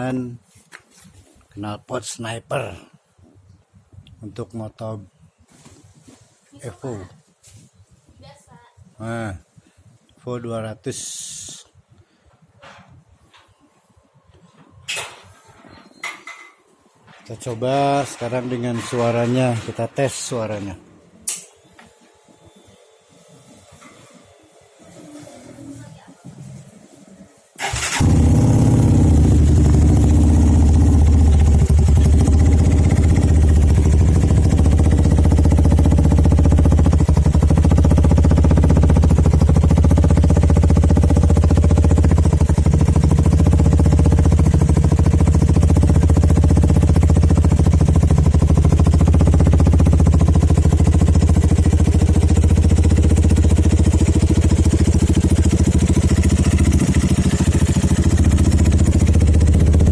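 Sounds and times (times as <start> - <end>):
motorcycle engine idling: 27.6 - 59.9.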